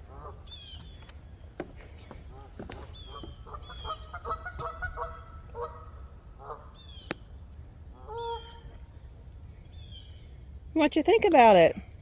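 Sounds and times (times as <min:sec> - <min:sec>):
geese honking: 0:00.0 - 0:00.7, 0:02.3 - 0:06.8, 0:08.0 - 0:08.7.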